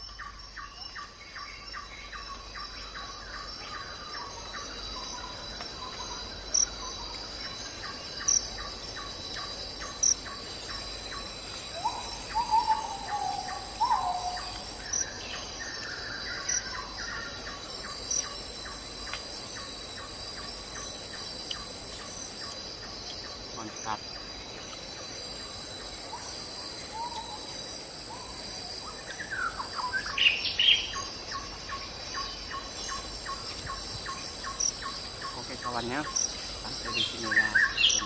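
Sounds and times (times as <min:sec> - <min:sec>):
insects trilling: 0:00.0 - 0:38.0
bird calling: 0:11.8 - 0:17.4.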